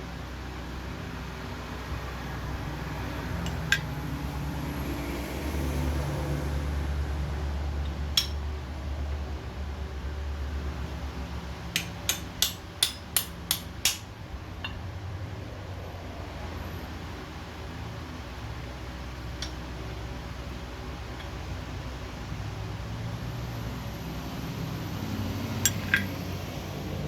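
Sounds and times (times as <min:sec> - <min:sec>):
hammer striking metal: 0:08.2 - 0:08.4, 0:11.8 - 0:14.8.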